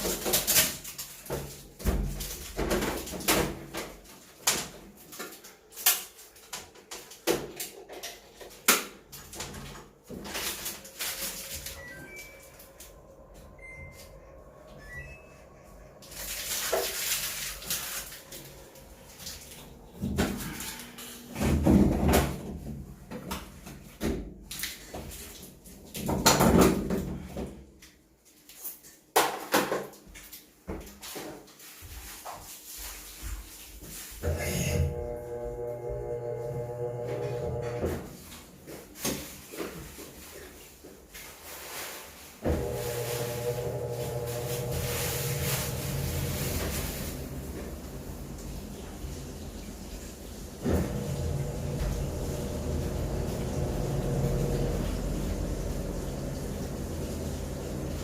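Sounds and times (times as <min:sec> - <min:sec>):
washing machine knocks and rattles: 0:01.3 - 0:05.0, 0:19.9 - 0:20.6, 0:21.3 - 0:25.2, 0:25.9 - 0:27.6, 0:50.4 - 0:58.0.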